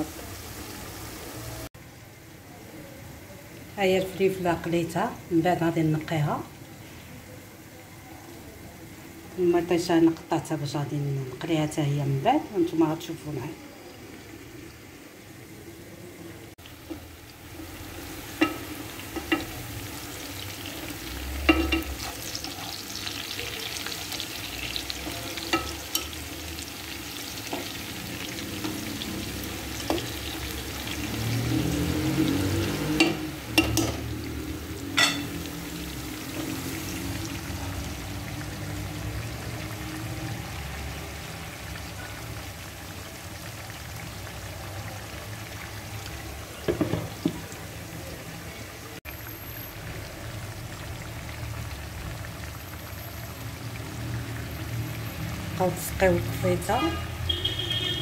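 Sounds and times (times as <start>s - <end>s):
hot oil sizzling: 0.0s - 58.0s
slotted spoon clinking on pan: 35.0s - 35.3s.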